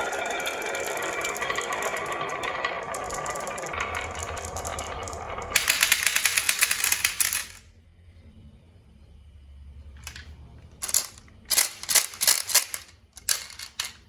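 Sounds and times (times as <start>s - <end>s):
marbles rolling and clicking: 0.0s - 7.6s, 10.8s - 14.0s
rapid clattering of marbles: 0.0s - 7.6s.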